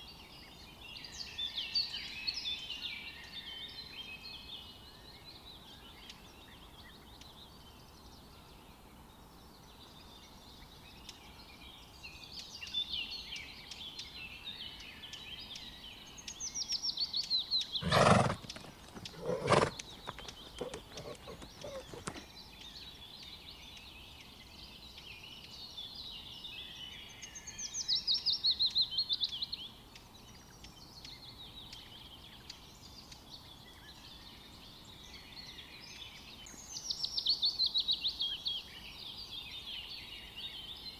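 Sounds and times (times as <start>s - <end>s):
songbirds singing: 17.8s - 22.7s.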